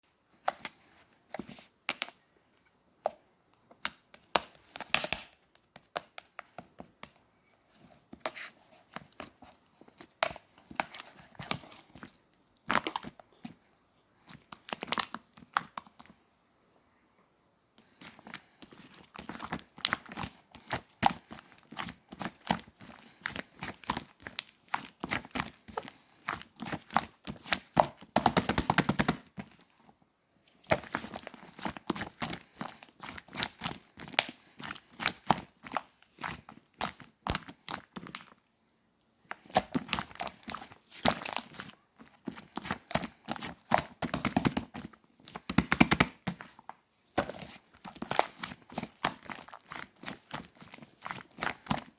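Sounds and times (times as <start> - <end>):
slime squished by hand: 39.3 - 51.9.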